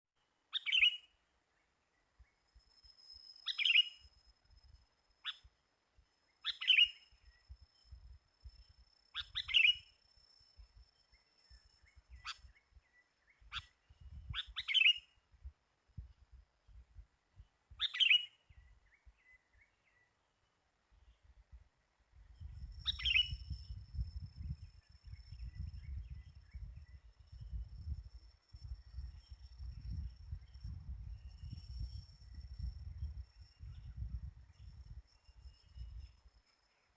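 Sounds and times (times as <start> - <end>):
bird giving bright calls: 13.5 - 15.1, 17.8 - 18.4.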